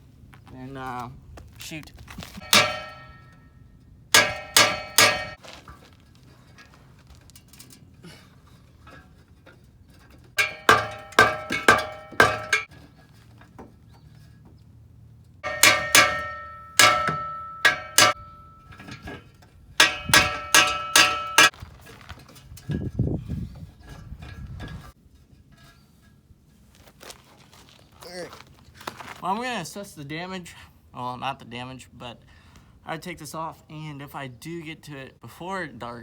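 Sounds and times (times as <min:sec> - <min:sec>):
hammer clanging on metal pipe: 0:02.4 - 0:03.4, 0:04.2 - 0:05.4, 0:10.4 - 0:12.7, 0:15.4 - 0:19.2, 0:19.8 - 0:21.5.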